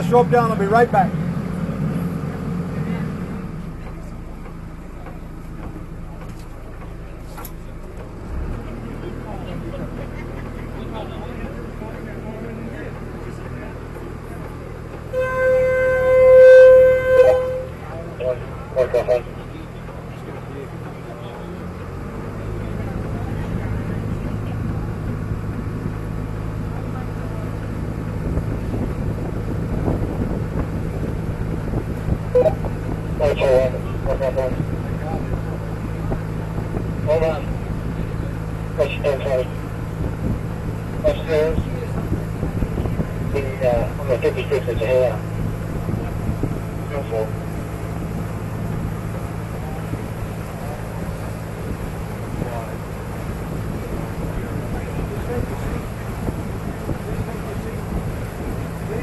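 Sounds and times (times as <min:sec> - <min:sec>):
boat engine idling: 0:00.0 - 0:59.0
water noise: 0:00.0 - 0:59.0
wind noise on microphone: 0:23.6 - 0:38.8, 0:39.4 - 0:44.1, 0:45.2 - 0:59.0.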